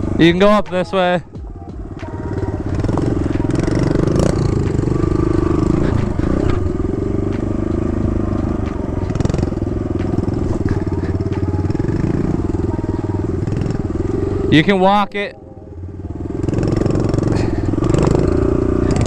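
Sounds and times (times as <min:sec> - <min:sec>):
dirt bike engine running: 0:00.0 - 0:19.0
knocks and scrapes of bike: 0:02.7 - 0:12.6.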